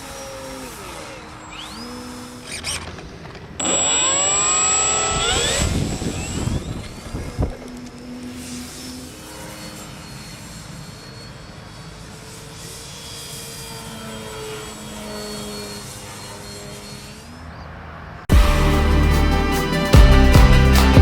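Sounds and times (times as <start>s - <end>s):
model plane motor buzzing: 0.0s - 17.4s
high motor whine: 3.6s - 17.3s.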